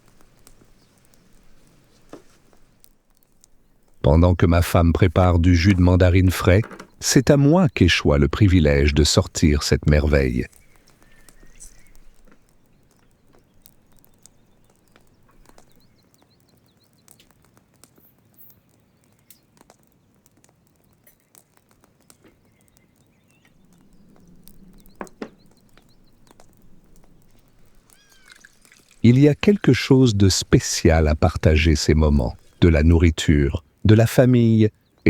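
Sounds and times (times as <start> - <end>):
light clicks and knocks: 0.0 - 7.3, 23.4 - 32.7
faint bird chirps: 3.2 - 17.3, 17.9 - 19.6, 22.0 - 32.6.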